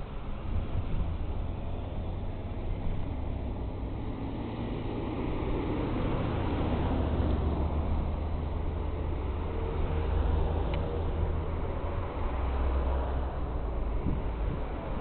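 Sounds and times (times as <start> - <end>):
wind noise on microphone: 0.0 - 8.1, 11.2 - 15.0
road and tyre noise: 0.0 - 15.0.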